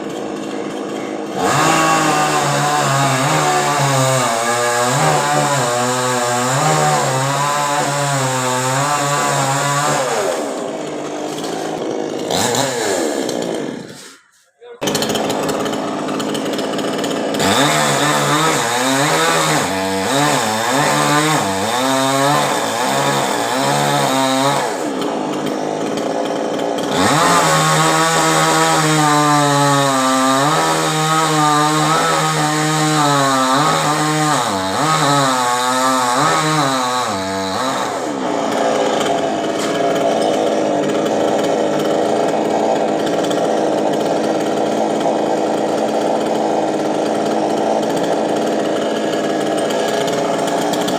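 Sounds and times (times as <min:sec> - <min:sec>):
chainsaw cutting: 0:00.0 - 0:50.9.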